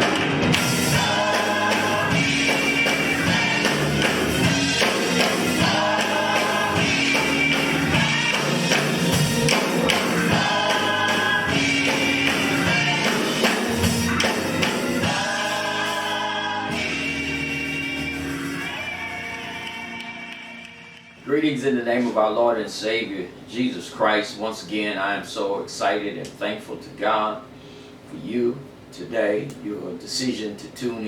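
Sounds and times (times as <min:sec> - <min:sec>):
gospel choir singing over a beat: 0:00.0 - 0:21.2.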